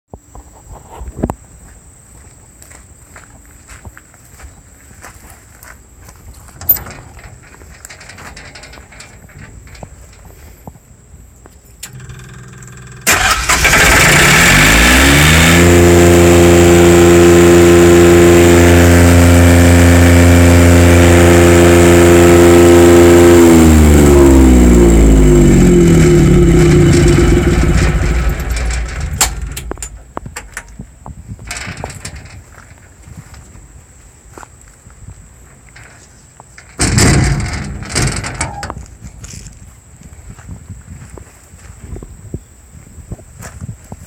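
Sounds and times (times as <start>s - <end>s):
generator engine running: 11.8s - 32.4s, 36.6s - 38.9s.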